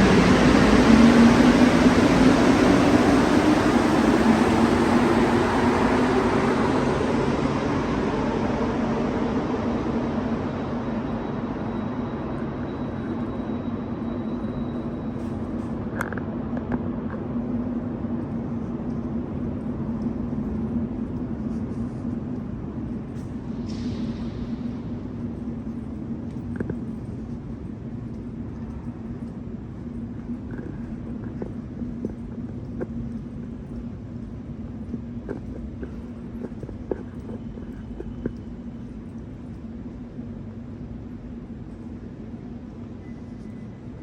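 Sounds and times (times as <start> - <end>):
metro train rumbling: 0.0 - 44.0.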